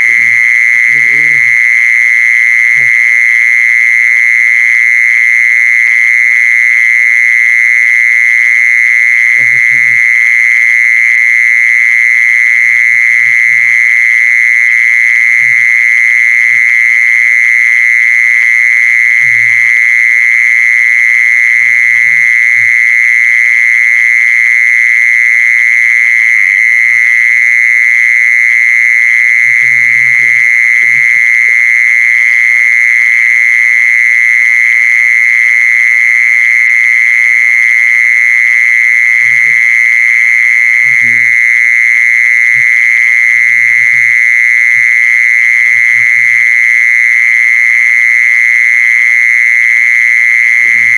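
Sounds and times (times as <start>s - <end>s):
high-pitched insect buzzing: 0.0s - 1.9s, 2.6s - 3.1s, 9.3s - 10.2s, 15.2s - 16.9s, 19.0s - 19.8s, 29.5s - 31.6s, 38.5s - 40.1s, 40.7s - 41.6s, 42.4s - 46.6s, 50.3s - 50.9s.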